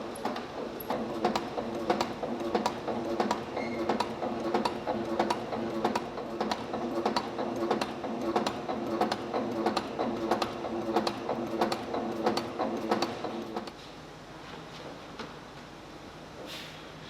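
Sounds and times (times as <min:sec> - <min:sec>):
steady machine hum: 0:00.0 - 0:14.4
machine rhythmic clacking: 0:00.2 - 0:13.7.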